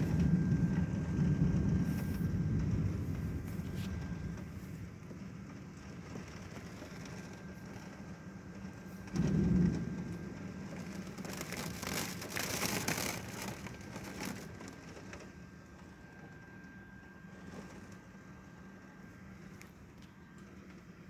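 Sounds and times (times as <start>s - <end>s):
thunder clap and rumbling: 0.0s - 14.9s
heavy rain: 0.0s - 15.2s.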